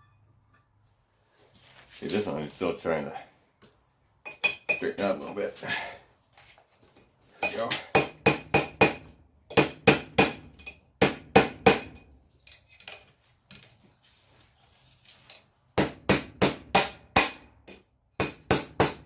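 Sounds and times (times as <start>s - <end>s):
hammer striking steel on anvil: 7.4s - 12.0s, 15.8s - 19.0s.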